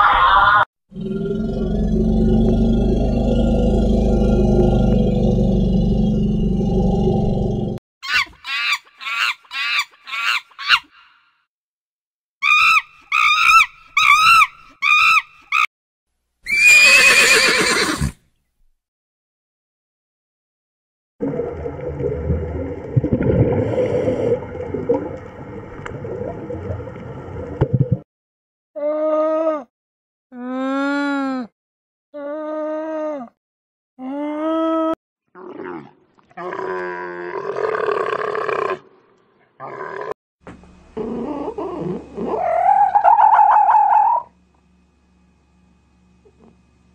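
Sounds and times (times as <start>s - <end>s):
horse whinnying: 16.4s - 18.2s
alpaca humming: 41.0s - 44.3s.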